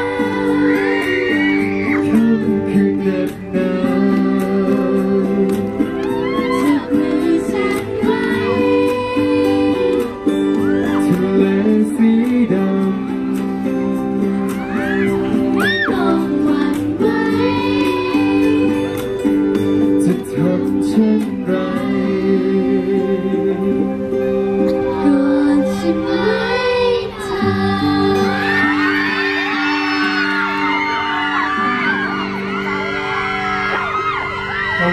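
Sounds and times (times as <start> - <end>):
person singing long notes: 0.0 - 13.8
crowd screaming and cheering: 0.0 - 20.0, 24.1 - 34.9
guitar playing held chords: 0.0 - 34.9.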